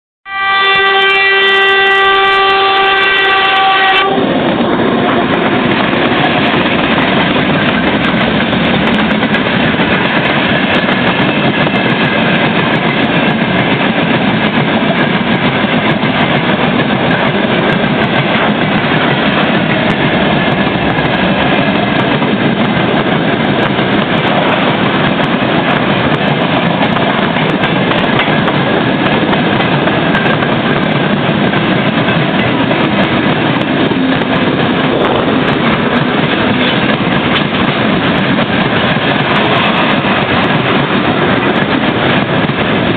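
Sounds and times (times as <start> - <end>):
locomotive horn: 0.3 - 6.6
freight train running past: 0.3 - 42.9.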